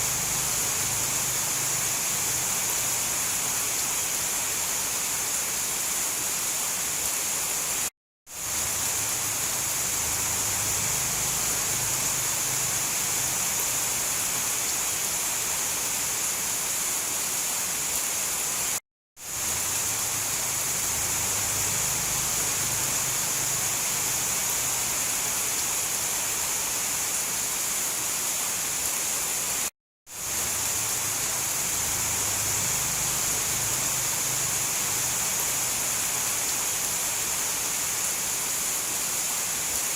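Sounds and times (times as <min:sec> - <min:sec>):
hissing downpour of rain: 0:00.0 - 0:39.9.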